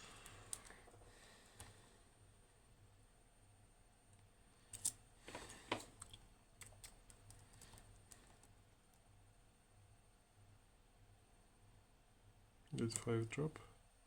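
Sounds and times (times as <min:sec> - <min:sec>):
lock pick clicking and scratching: 0:04.7 - 0:05.0.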